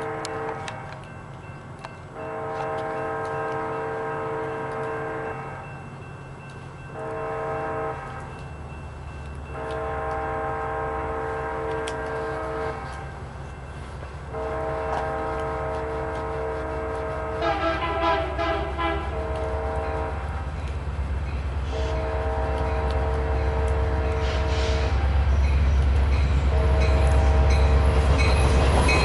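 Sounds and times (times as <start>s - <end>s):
locomotive air horn blasts: 0.0s - 1.0s, 2.2s - 5.6s, 7.0s - 8.3s, 9.5s - 13.2s, 14.3s - 20.4s, 21.6s - 25.2s, 26.5s - 28.0s
diesel locomotive rumble: 0.0s - 29.0s.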